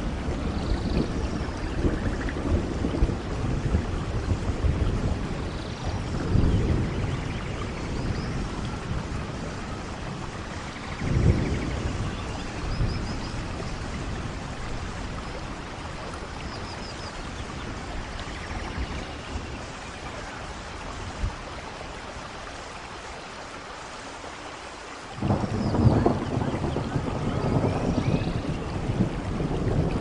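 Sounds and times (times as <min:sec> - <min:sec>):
thunder rumble: 0:00.0 - 0:22.3, 0:25.2 - 0:30.0
steady rainfall: 0:00.0 - 0:30.0.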